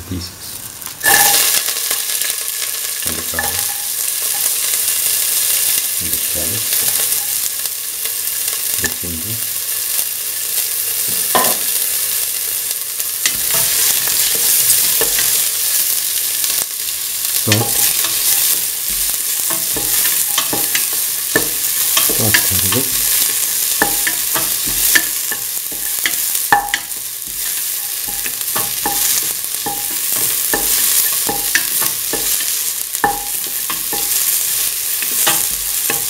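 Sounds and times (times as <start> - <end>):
food sizzling in oil: 0.6 - 36.0
spatula knocking on metal pan: 11.4 - 11.7, 23.8 - 34.2.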